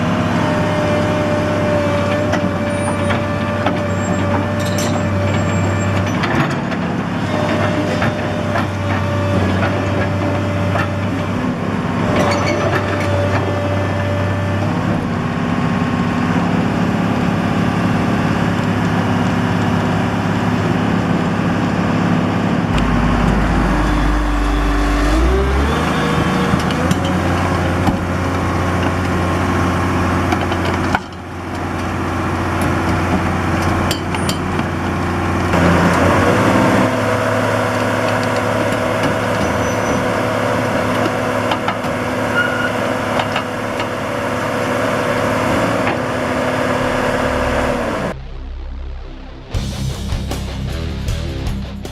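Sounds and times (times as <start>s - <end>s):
excavator diesel engine running: 0.0s - 51.6s
rising whine: 22.7s - 28.0s, 45.8s - 50.9s.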